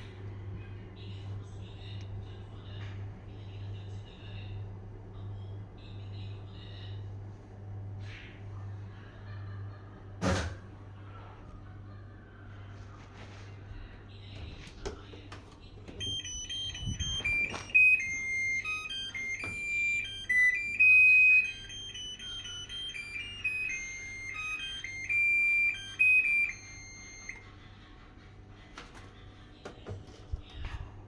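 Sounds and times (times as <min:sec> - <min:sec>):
washing machine buzzer melody: 0:14.5 - 0:27.4.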